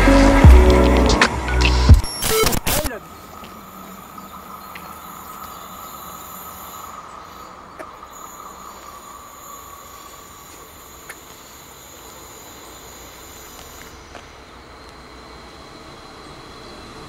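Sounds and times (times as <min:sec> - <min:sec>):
steady high tone: 0:00.0 - 0:03.9
distant train rumble and hiss: 0:02.9 - 0:17.0.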